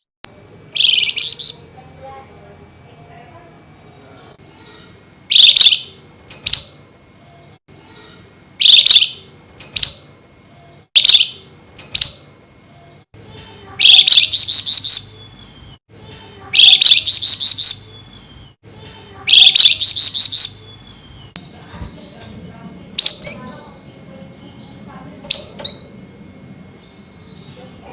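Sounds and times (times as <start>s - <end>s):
bird harsh chattering calls: 0.8s - 1.8s, 4.1s - 6.8s, 7.9s - 10.2s, 13.0s - 18.3s, 18.9s - 22.2s.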